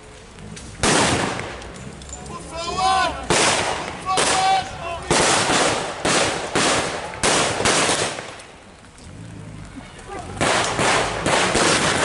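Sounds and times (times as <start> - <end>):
blank gunfire: 0.8 - 1.5, 5.1 - 8.4, 10.4 - 12.0.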